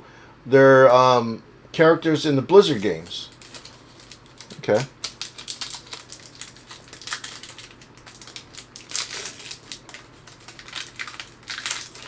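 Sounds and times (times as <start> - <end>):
cards and wrapper crinkling: 2.7 - 12.0.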